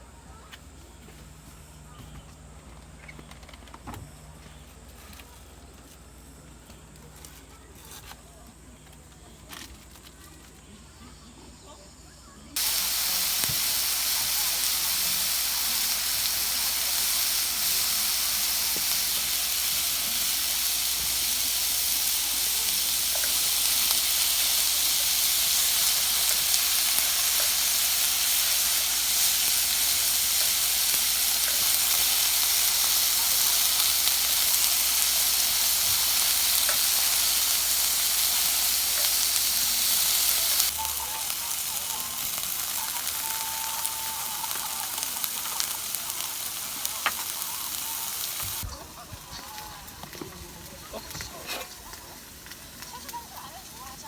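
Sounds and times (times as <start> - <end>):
faint crackles: 12.6 - 54.0
meat sizzling on a grill: 12.6 - 54.0.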